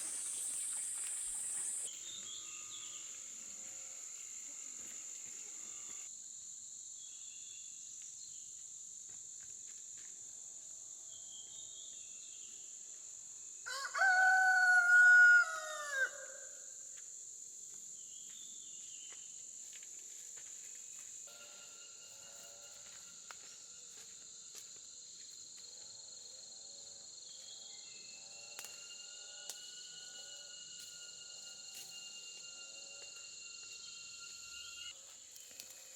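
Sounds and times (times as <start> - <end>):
insects buzzing: 0.0 - 6.2, 9.9 - 35.9
rooster crowing: 13.7 - 16.7.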